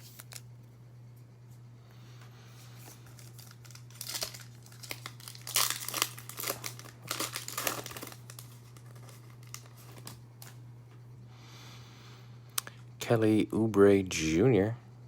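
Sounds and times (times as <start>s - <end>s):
foil wrapper crinkling and tearing: 0.0s - 0.4s, 2.8s - 10.6s.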